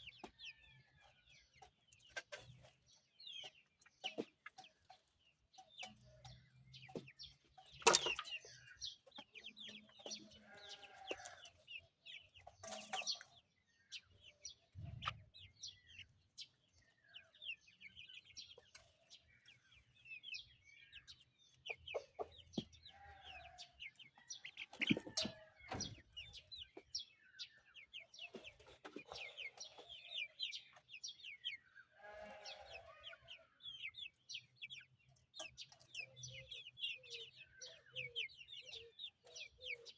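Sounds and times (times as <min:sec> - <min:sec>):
chicken clucking: 0:00.0 - 0:39.9
chicks peeping: 0:00.0 - 0:39.9.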